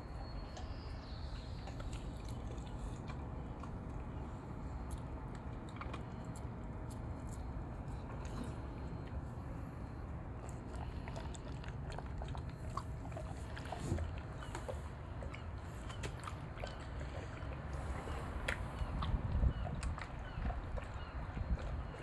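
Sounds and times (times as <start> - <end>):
dog chewing crunchily: 0.4 - 22.0.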